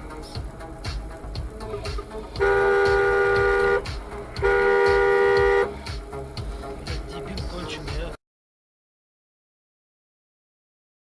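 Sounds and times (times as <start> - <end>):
car horn blasts: 2.4 - 5.8.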